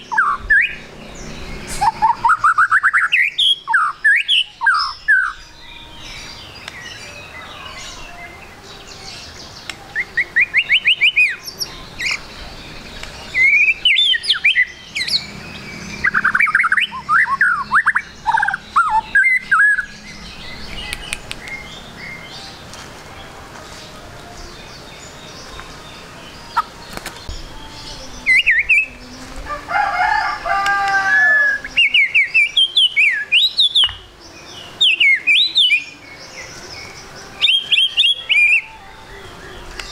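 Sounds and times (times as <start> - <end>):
bird singing whistled phrases: 0.0 - 0.9, 1.6 - 8.6, 9.2 - 12.3, 13.3 - 15.3, 16.0 - 22.4, 31.1 - 39.9.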